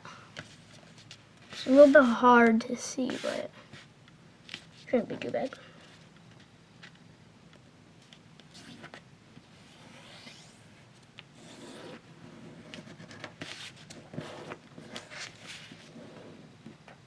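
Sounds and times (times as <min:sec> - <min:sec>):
paper rustling and rubbing: 0:03.0 - 0:03.9, 0:09.6 - 0:10.6, 0:11.4 - 0:16.5.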